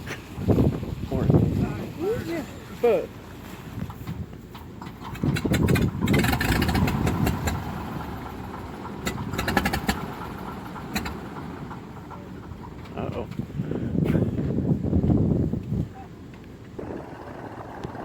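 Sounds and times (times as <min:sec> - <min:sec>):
propeller engine running: 0:04.5 - 0:13.8, 0:16.8 - 0:18.0
sharp clicks: 0:10.9 - 0:11.3.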